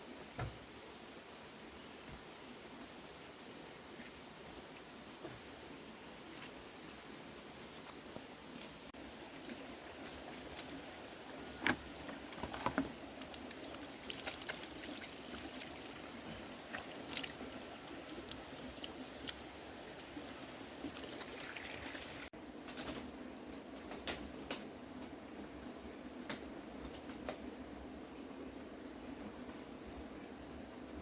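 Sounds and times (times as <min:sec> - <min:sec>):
trickling water: 0:07.7 - 0:22.3.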